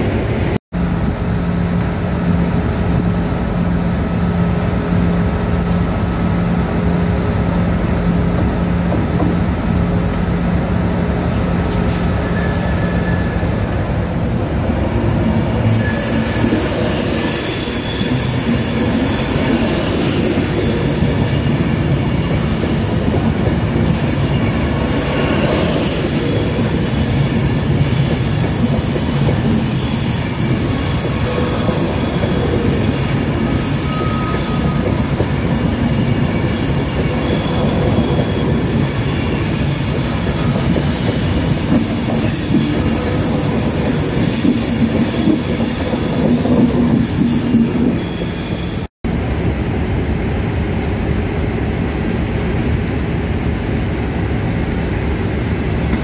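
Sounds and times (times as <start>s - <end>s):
train rumble: 0.0s - 56.0s
train wheels squealing: 11.7s - 13.6s, 15.6s - 48.9s.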